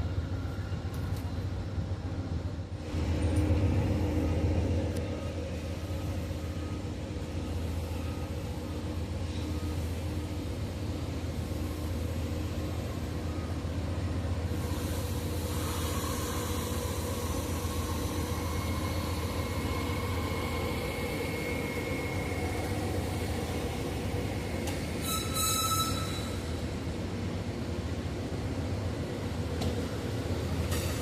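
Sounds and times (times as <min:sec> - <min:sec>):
train wheel squeal: 0:05.2 - 0:13.8, 0:14.4 - 0:26.8.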